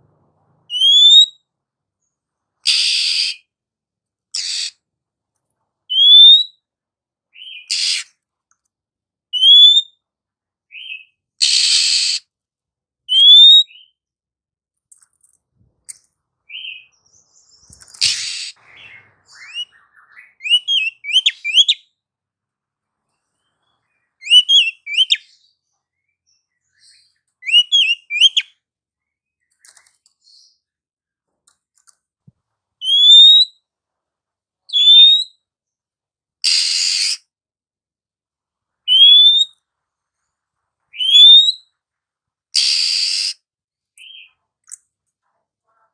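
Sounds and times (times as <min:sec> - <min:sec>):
bird whistling calls: 0:00.7 - 0:01.4, 0:02.7 - 0:03.4, 0:05.9 - 0:06.6, 0:07.4 - 0:08.1, 0:09.4 - 0:10.0, 0:10.7 - 0:12.2, 0:13.1 - 0:13.9, 0:18.0 - 0:21.8, 0:24.2 - 0:25.3, 0:27.4 - 0:28.5, 0:32.8 - 0:33.5, 0:34.7 - 0:35.3, 0:36.4 - 0:37.2, 0:38.9 - 0:39.6, 0:41.0 - 0:41.7, 0:42.6 - 0:43.4
bird harsh rasping notes: 0:17.9 - 0:21.7.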